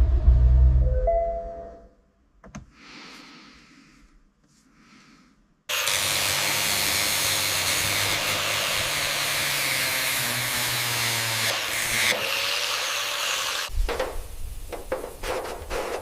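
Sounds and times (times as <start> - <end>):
motor tool hissing: 11.4 - 13.7.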